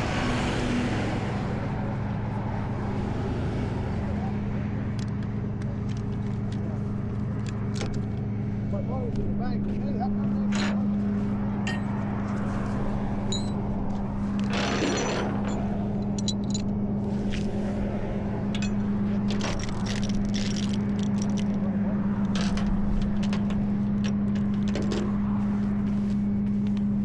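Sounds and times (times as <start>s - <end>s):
metallic clicks and jangles: 10.5s - 10.9s, 11.6s - 12.1s, 13.3s - 13.6s, 14.4s - 16.7s, 18.5s - 21.6s, 22.2s - 25.0s.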